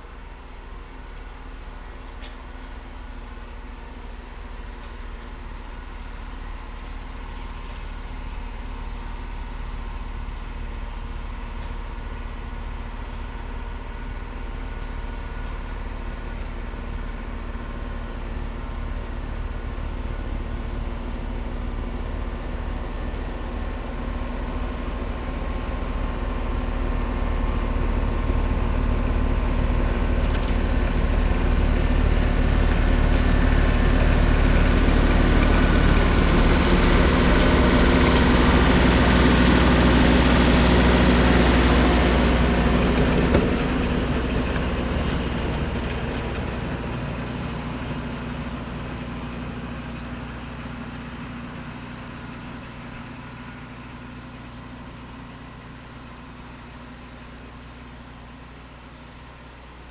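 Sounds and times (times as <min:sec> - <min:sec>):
tractor engine running: 0:00.0 - 0:59.8.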